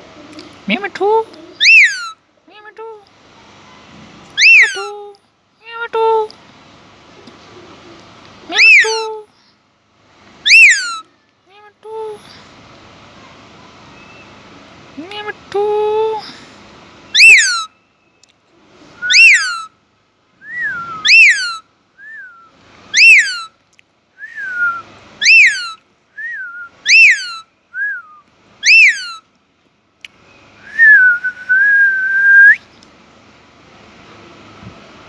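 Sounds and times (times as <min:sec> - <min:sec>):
soft parrot chirps: 0:01.5 - 0:02.2, 0:03.6 - 0:05.0, 0:08.5 - 0:09.1, 0:10.4 - 0:11.1, 0:17.1 - 0:18.3, 0:19.0 - 0:19.7, 0:20.7 - 0:22.3, 0:22.9 - 0:23.6, 0:25.2 - 0:29.2
parrot whistling: 0:01.6 - 0:02.2, 0:04.4 - 0:04.9, 0:08.5 - 0:09.1, 0:10.4 - 0:11.0, 0:17.1 - 0:17.8, 0:19.0 - 0:19.7, 0:20.4 - 0:23.5, 0:24.2 - 0:29.2, 0:30.6 - 0:32.6.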